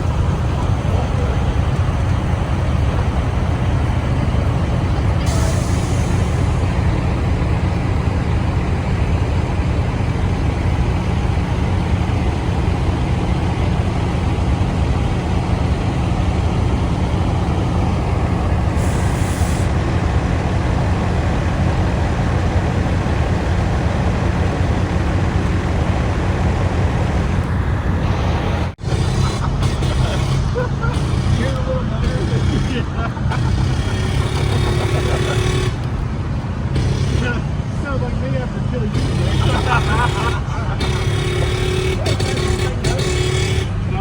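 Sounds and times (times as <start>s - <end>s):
diesel truck engine running: 0.0s - 44.0s.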